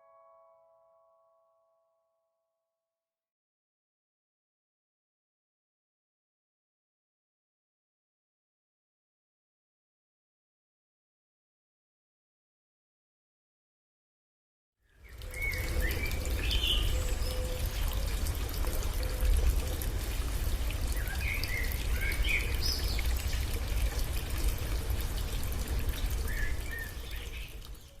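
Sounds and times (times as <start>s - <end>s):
stream trickling and pouring: 14.9s - 28.0s.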